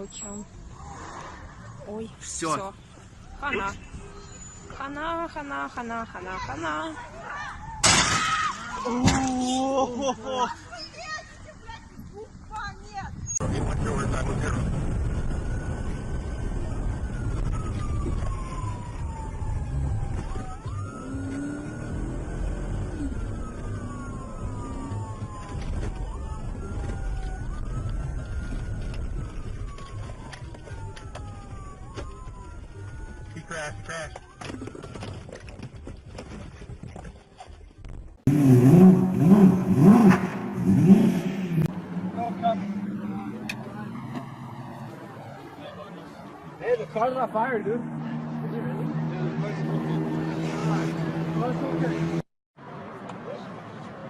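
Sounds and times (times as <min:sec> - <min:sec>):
road and engine rumble: 0:00.0 - 0:54.0
siren wailing: 0:14.4 - 0:35.6, 0:38.7 - 0:52.2
car engine revving: 0:38.3 - 0:52.3.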